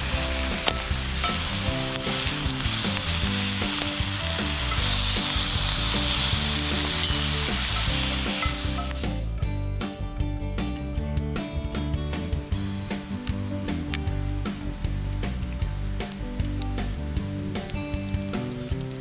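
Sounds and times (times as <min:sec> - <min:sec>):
food sizzling in a pan: 0:00.0 - 0:09.3
background music: 0:00.0 - 0:19.0.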